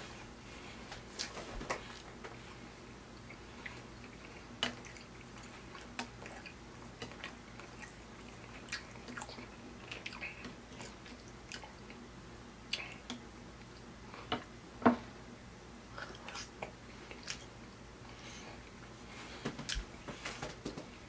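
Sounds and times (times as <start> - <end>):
faint low hum: 0.0 - 21.0
close chewing with wet mouth sounds: 3.1 - 12.0, 12.7 - 13.9, 15.9 - 17.6.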